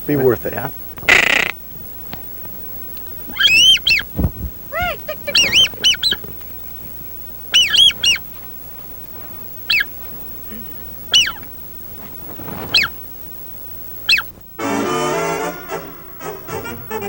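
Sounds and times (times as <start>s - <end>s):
duck calling: 0.0s - 1.7s, 3.2s - 11.6s, 12.6s - 13.0s, 14.0s - 14.4s.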